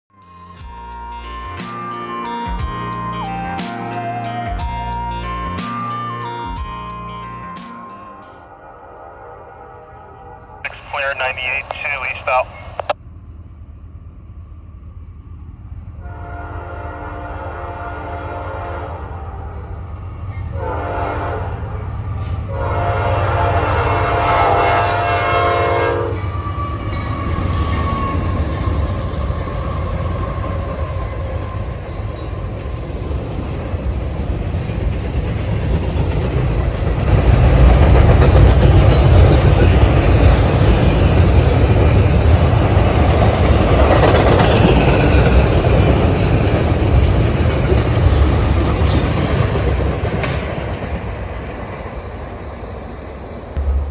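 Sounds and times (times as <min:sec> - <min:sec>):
train rumble and wheel clatter: 0:12.3 - 0:53.9
locomotive horn blasts: 0:16.0 - 0:19.1, 0:20.6 - 0:21.5, 0:22.5 - 0:26.3.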